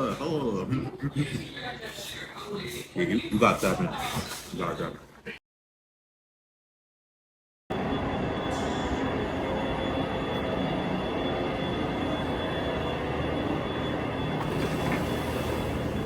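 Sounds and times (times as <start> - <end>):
thin high whine: 7.8 - 16.0
moving vehicle rumble: 13.4 - 16.0.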